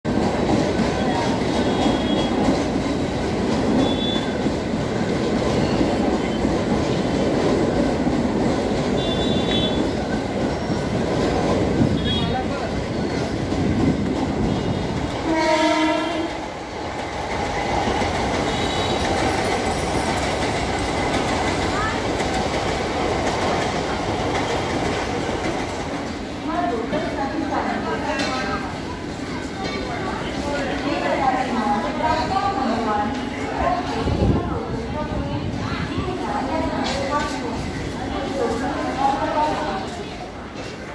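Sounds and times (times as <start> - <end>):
train rail noise: 0.0 - 40.9
train horn blast: 9.0 - 9.9, 14.5 - 16.4.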